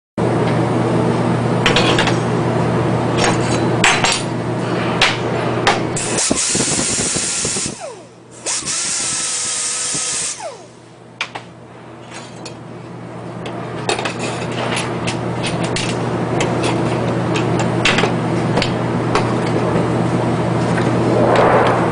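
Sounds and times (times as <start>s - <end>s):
machinery low hum: 10.4s - 21.9s.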